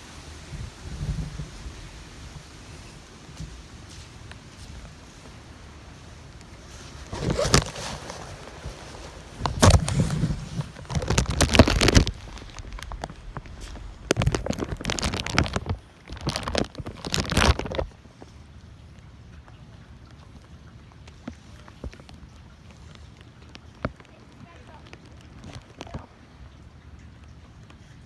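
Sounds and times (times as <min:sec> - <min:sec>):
wind buffeting microphone: 0:00.0 - 0:17.9.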